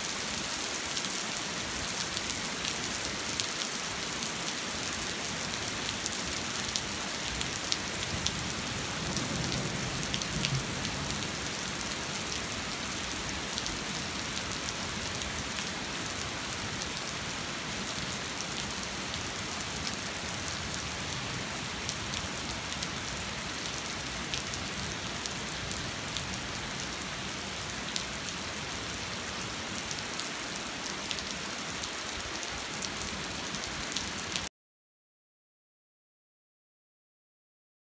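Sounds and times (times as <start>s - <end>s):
rain pattering on hard surface: 4.5s - 13.7s.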